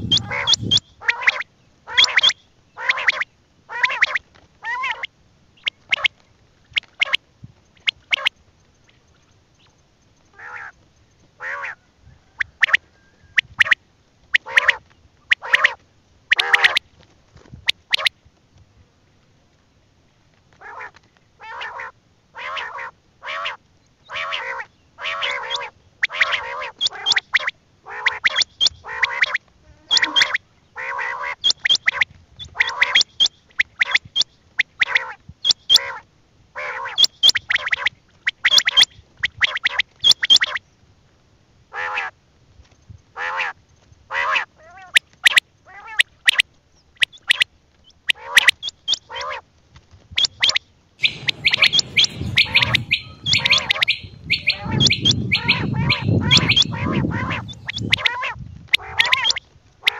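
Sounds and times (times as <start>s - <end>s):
birds making harsh calls: 0.0s - 5.1s, 20.6s - 34.1s, 50.2s - 59.9s.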